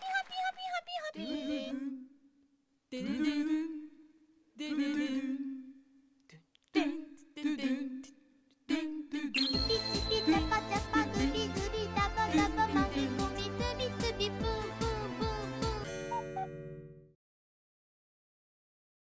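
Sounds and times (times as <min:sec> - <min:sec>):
music: 0:09.4 - 0:17.2.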